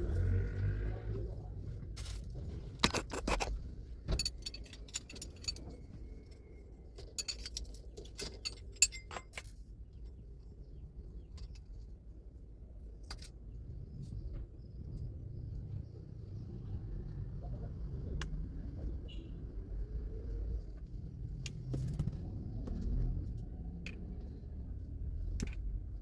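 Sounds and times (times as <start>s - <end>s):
small metal objects clinking: 4.1s - 6.4s, 7.0s - 9.7s.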